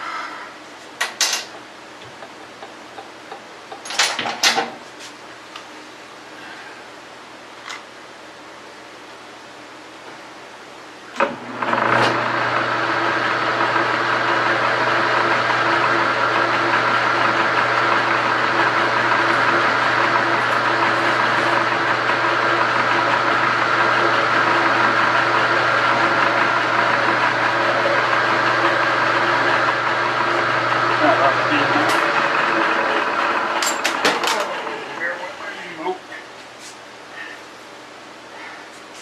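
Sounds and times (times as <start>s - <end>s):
lathe motor humming and whining: 11.2s - 36.1s.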